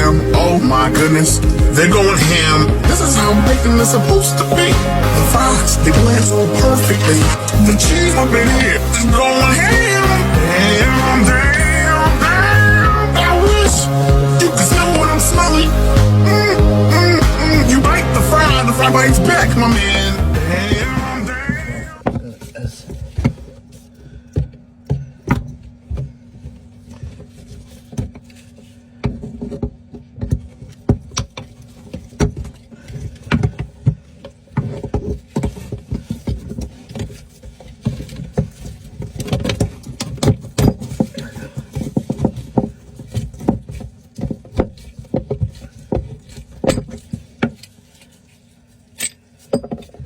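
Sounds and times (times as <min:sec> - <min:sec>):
steady low hum: 0:00.0 - 0:29.4.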